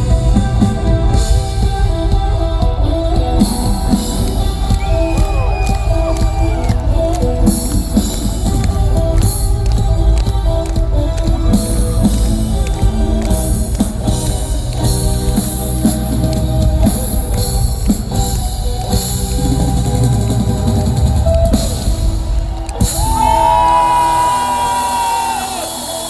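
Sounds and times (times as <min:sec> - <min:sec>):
rock band playing live: 0:00.0 - 0:26.0.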